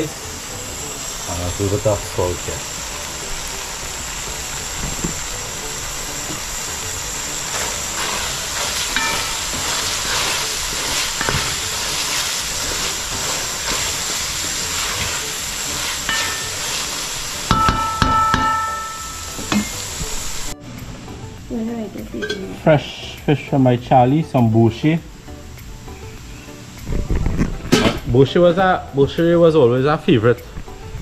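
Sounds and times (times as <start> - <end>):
peas sizzling in a pot: 0.0 - 31.0
metallic knocks on a pot: 17.5 - 19.7.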